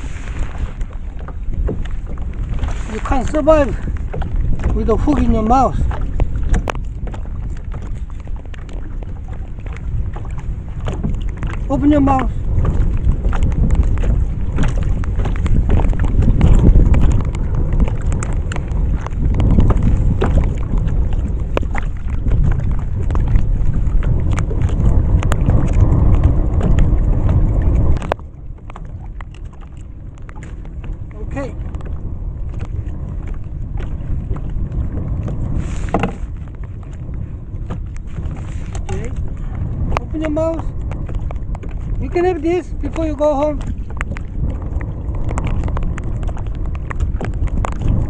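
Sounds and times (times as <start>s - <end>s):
wind buffeting microphone: 0.0s - 48.0s
small irregular clicks: 6.2s - 9.1s, 28.0s - 30.8s, 43.8s - 48.0s.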